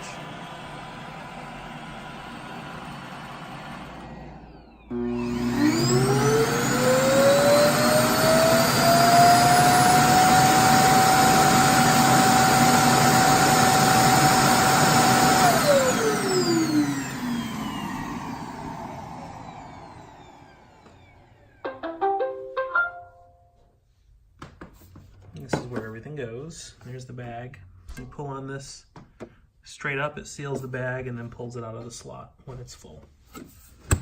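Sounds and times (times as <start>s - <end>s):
suction motor whining: 3.7s - 21.4s.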